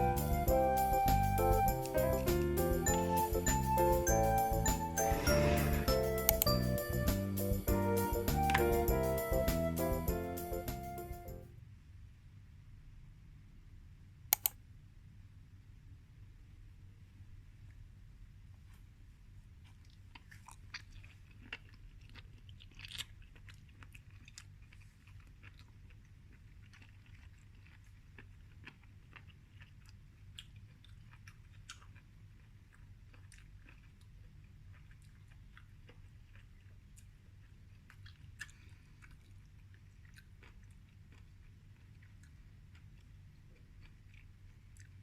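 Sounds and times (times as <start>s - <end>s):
low steady hum: 0.0s - 21.4s
person chewing and biting: 19.5s - 45.0s.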